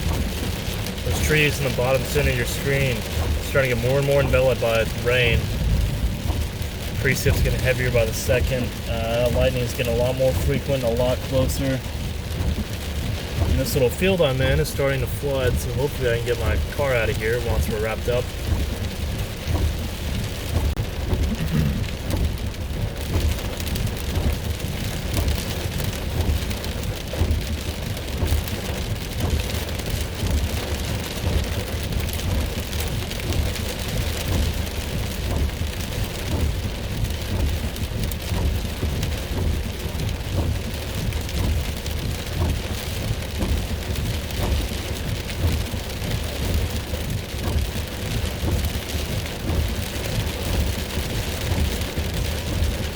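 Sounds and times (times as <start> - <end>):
deep rumble: 0.0 - 52.9
heavy rain on car roof: 0.0 - 52.9.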